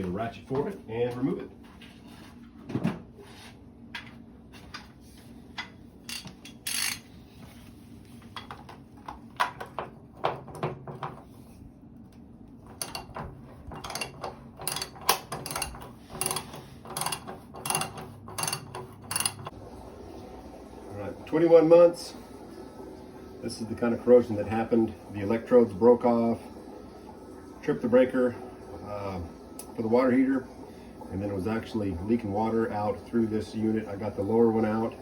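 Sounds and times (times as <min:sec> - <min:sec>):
metal clicks and scraping: 0:06.1 - 0:07.1.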